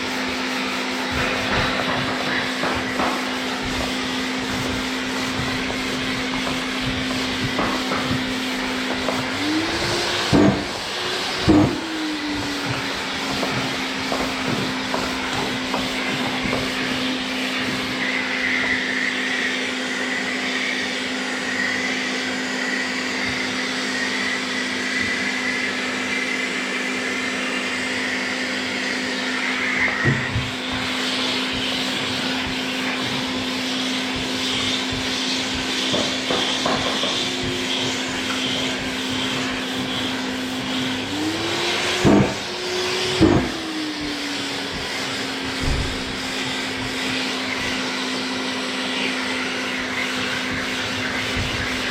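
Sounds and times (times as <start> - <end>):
orbital sander running: 0.0 - 51.9.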